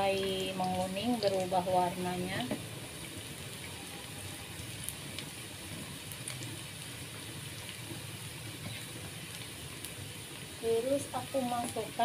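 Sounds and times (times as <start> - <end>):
food sizzling in hot oil: 0.0 - 12.0
faint crackles: 4.6 - 12.0.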